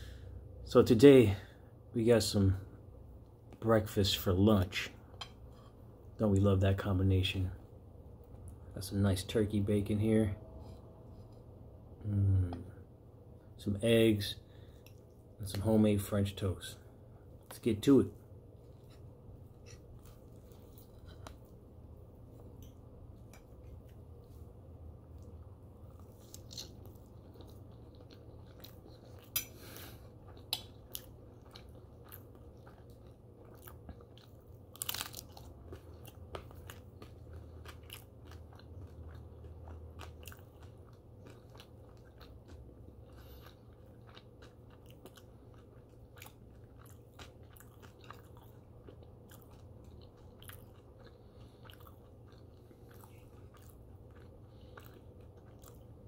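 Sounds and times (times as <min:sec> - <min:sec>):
person chewing crisp food: 0:18.4 - 0:56.0.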